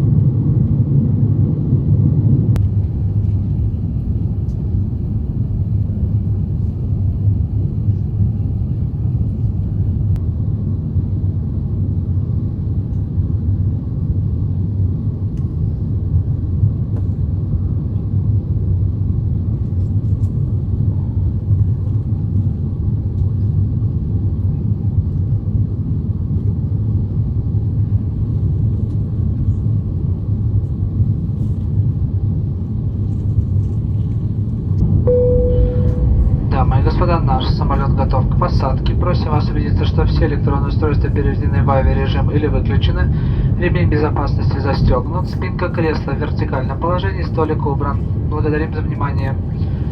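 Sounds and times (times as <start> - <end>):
airplane cabin engine rumble: 0.0 - 49.9
airflow: 34.8 - 46.2, 49.4 - 49.9.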